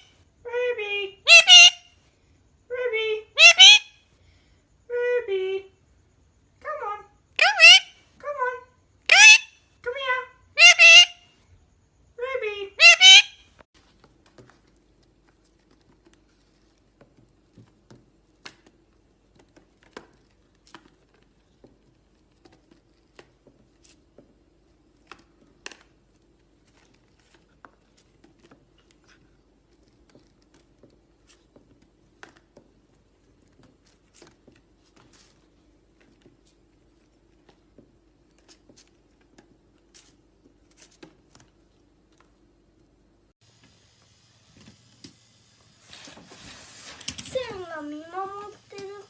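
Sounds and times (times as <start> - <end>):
low room hum: 0.0 - 49.0
faint clicks and crinkles: 13.7 - 43.0.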